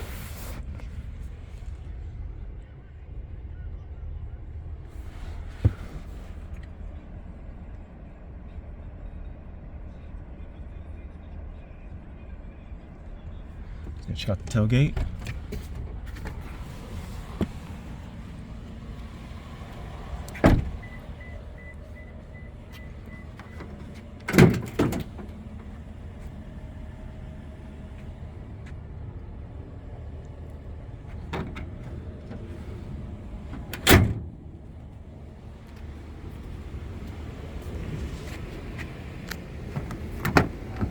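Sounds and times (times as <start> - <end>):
truck engine idling: 0.0 - 40.9
tailgate thumps: 19.6 - 21.2, 22.8 - 25.8, 31.1 - 34.5, 39.6 - 40.9.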